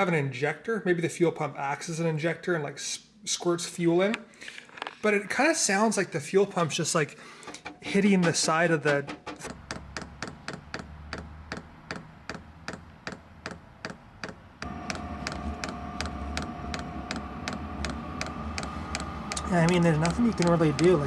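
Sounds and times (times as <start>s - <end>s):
fuel pump ticking: 7.4s - 21.0s
steady hum with faint whine: 14.6s - 21.0s.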